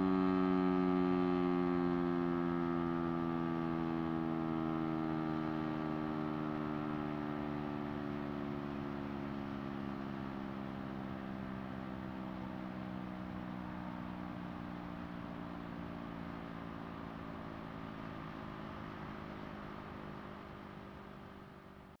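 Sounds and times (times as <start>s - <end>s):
siren winding down: 0.0s - 7.9s.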